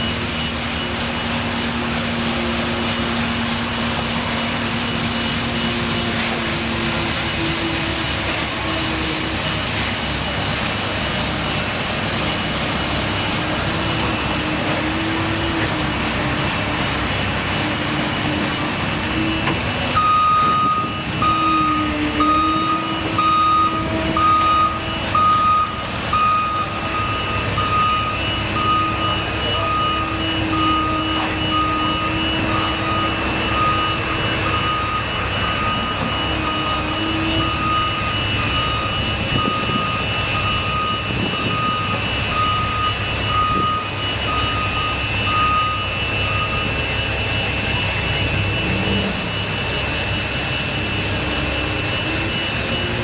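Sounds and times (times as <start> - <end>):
construction vehicle engine running: 0.0 - 53.0
reversing alarm beeps: 0.0 - 53.0.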